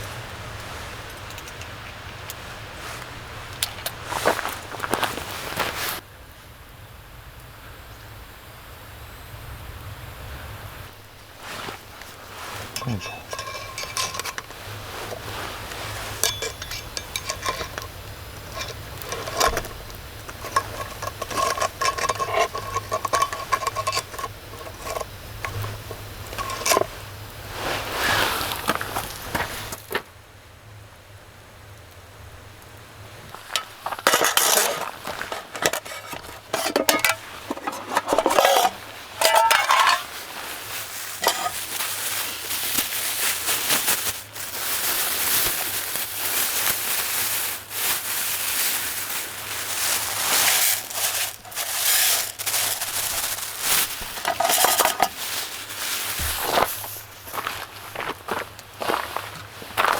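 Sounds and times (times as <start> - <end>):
steady hissing: 8.8 - 29.9, 33.0 - 58.8
cookware and utensils clinking: 11.3 - 27.0, 33.4 - 42.6, 49.6 - 57.5.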